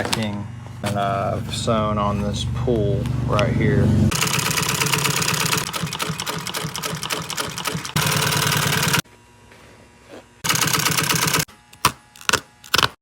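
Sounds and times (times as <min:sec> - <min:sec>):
sewing machine stitching: 0:04.1 - 0:09.0, 0:10.4 - 0:11.5.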